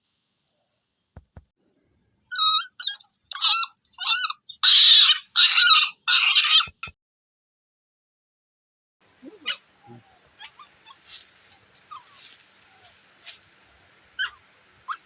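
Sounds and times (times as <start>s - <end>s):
puppy whining: 2.3s - 6.8s, 11.9s - 12.9s
faint rustles and clicks: 10.4s - 13.8s.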